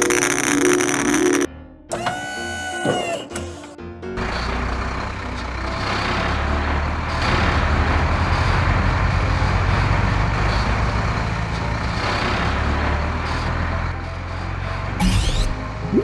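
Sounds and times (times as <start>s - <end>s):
heavy truck engine rumbling: 2.8s - 16.0s.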